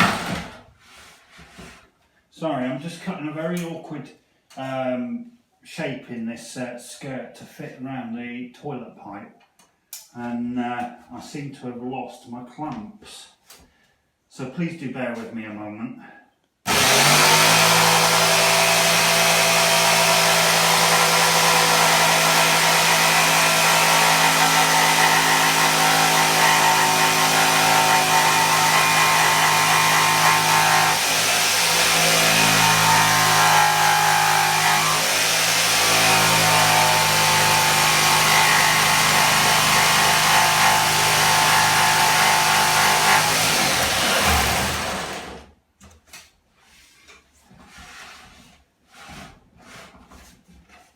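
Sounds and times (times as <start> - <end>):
electric jigsaw cutting wood: 0.0 - 0.6, 16.7 - 45.5.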